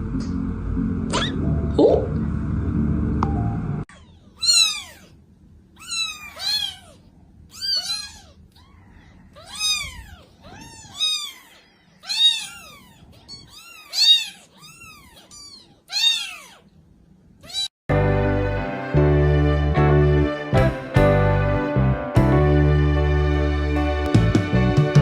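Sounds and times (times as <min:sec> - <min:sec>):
kitten meowing: 0:05.8 - 0:08.7, 0:09.4 - 0:16.6, 0:17.4 - 0:17.7.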